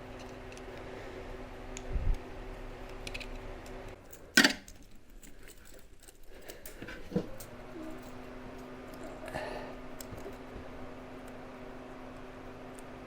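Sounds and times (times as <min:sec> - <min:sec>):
faint steady hum: 0:00.0 - 0:13.0
tools clattering: 0:04.0 - 0:08.2.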